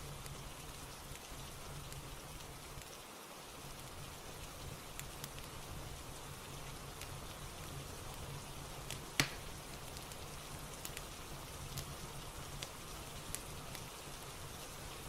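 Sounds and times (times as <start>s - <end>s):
fireplace crackling: 0.0s - 15.0s
steady rain: 0.0s - 15.0s.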